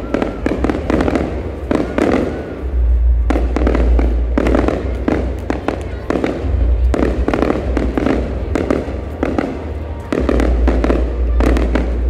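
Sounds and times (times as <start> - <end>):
low rumble: 2.4 - 9.8.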